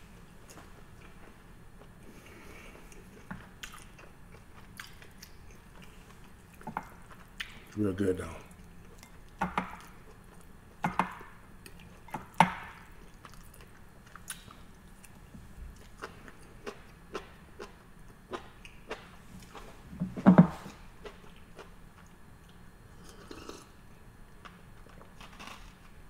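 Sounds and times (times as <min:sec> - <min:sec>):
wet chewing sounds: 0:00.5 - 0:07.8, 0:12.7 - 0:19.7.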